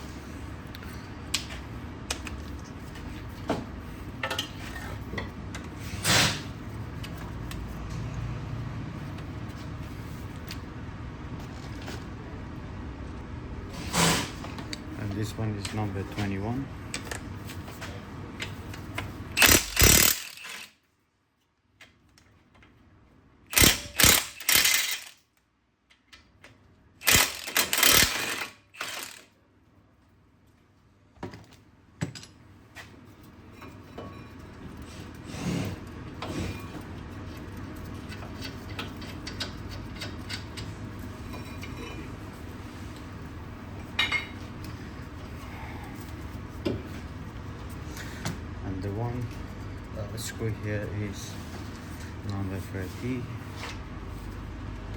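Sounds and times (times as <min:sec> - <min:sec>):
workshop noise: 0:00.0 - 0:20.8, 0:23.5 - 0:25.2, 0:27.0 - 0:29.3, 0:31.2 - 0:54.9
tool rattling on a bolt: 0:19.4 - 0:20.7, 0:23.5 - 0:25.2, 0:27.0 - 0:29.2.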